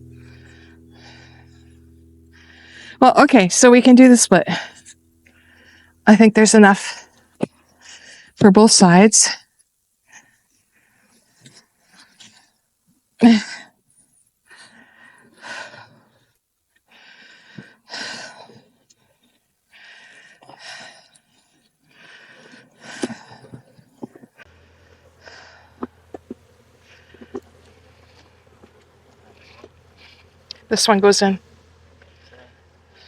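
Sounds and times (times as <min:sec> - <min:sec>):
faint low hum: 0:00.0 - 0:09.4, 0:22.1 - 0:33.0.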